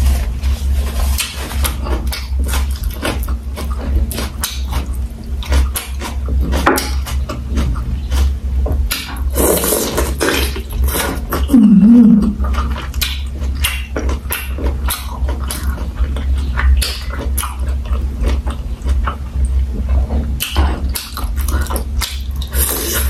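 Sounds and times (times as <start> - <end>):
steady low hum: 0.0 - 23.0
wet chewing and mouth smacks: 1.1 - 11.5, 12.2 - 19.6, 20.3 - 23.0
short wavering hum: 11.4 - 12.5.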